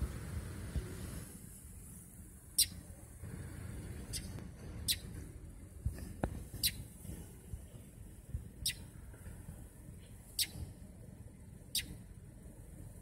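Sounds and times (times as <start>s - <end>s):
short high-pitched bird chirps: 2.6s - 2.8s, 11.7s - 12.0s.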